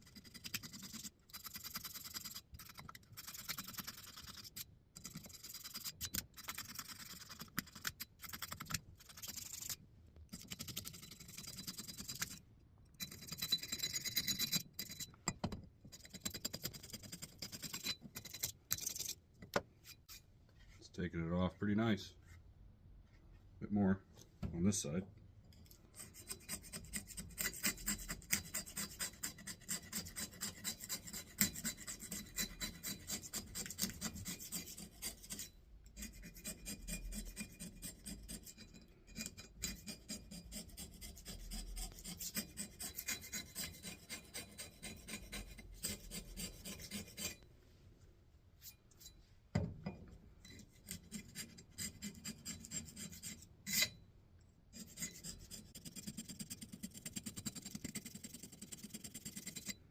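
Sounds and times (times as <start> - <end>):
wire brush scrubbing metal: 26.0 - 47.4.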